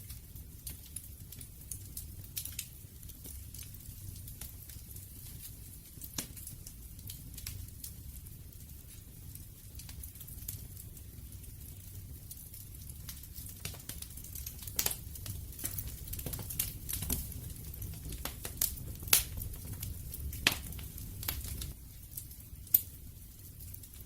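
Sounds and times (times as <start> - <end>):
low rumble of flames: 0.0 - 24.0
wood fire crackling and popping: 0.0 - 24.0.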